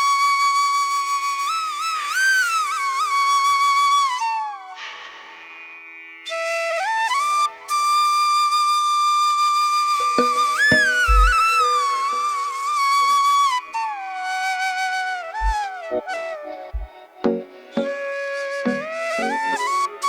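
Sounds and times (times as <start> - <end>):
flute music over drone: 6.3 - 20.0
low thumps: 10.2 - 11.4, 16.7 - 17.5.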